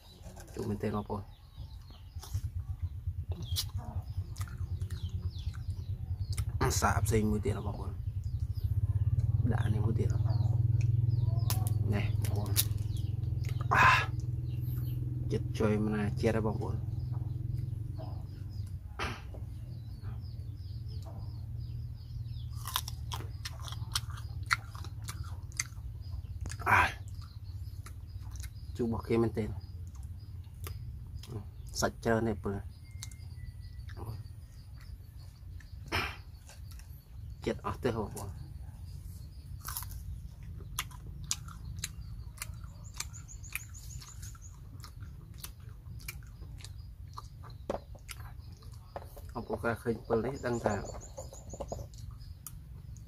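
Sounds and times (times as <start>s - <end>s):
crisp chewing crunches: 22.5s - 28.7s, 39.4s - 49.2s.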